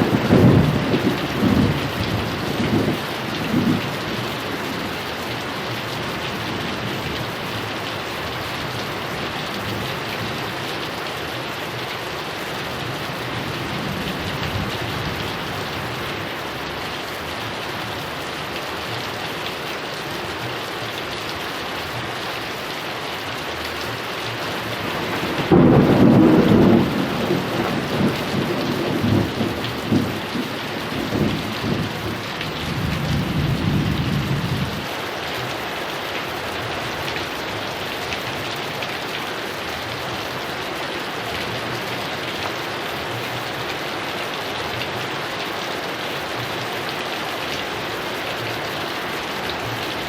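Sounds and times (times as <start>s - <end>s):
low rumble of thunder: 0.0s - 4.0s, 24.7s - 34.9s
heavy rain falling: 0.0s - 50.0s.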